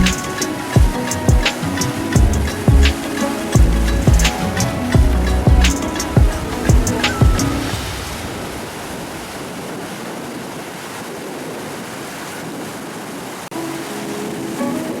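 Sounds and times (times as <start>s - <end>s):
music: 0.0s - 8.1s, 13.5s - 15.0s
ocean waves breaking: 0.0s - 15.0s.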